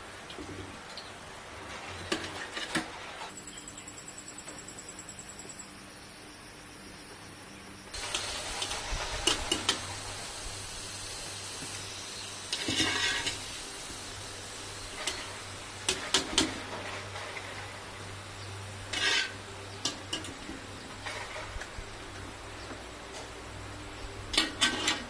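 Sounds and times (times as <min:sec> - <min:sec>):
steady hiss: 0:00.0 - 0:03.3, 0:05.1 - 0:25.0
utensils and cookware clattering: 0:01.7 - 0:03.3, 0:08.0 - 0:10.2, 0:11.5 - 0:21.8, 0:24.3 - 0:25.0.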